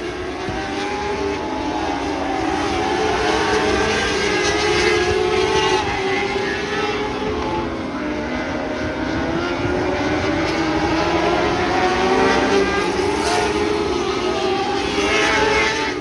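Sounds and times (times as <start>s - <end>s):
racing car engines passing: 0.0s - 16.0s.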